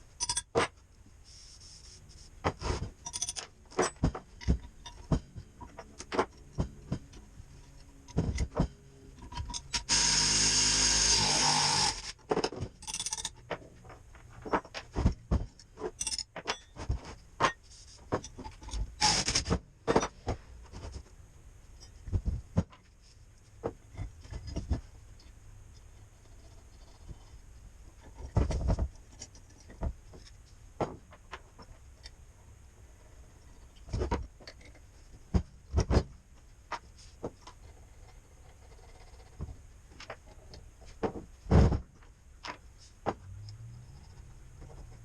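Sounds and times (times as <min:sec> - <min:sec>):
tools clicking and knocking: 0:00.2 - 0:00.8, 0:02.5 - 0:10.2, 0:11.1 - 0:20.4.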